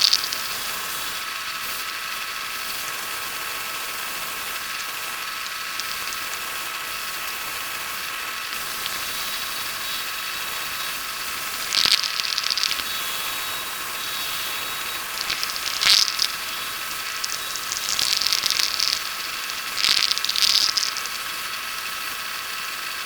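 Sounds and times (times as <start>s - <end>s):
wood lathe motor whine: 0.0s - 23.0s.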